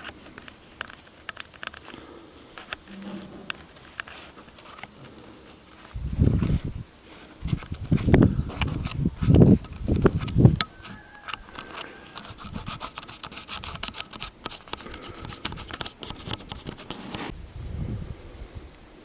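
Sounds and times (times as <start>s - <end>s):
tool scratching gasket material: 10.8s - 17.3s.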